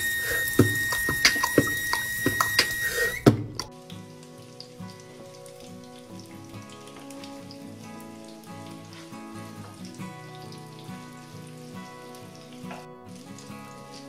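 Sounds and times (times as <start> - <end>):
oil sizzling and crackling: 0.0 - 14.0
soft background music: 0.0 - 14.0.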